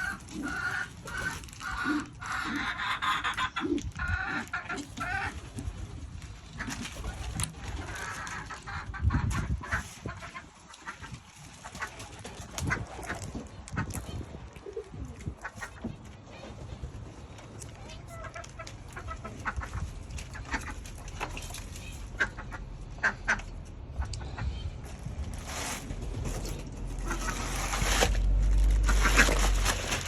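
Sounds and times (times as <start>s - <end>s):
hens clucking: 0.0s - 28.1s, 28.7s - 30.0s.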